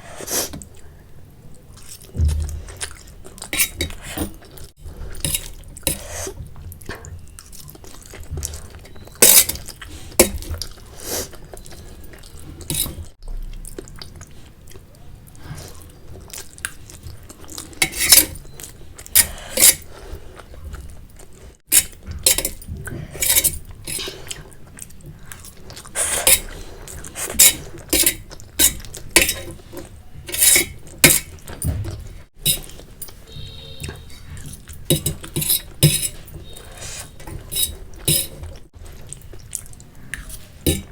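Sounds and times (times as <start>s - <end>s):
cutlery clinking on a plate: 9.2s - 10.5s, 17.8s - 18.5s, 21.7s - 24.0s, 27.4s - 29.6s, 30.3s - 38.5s, 40.2s - 40.9s.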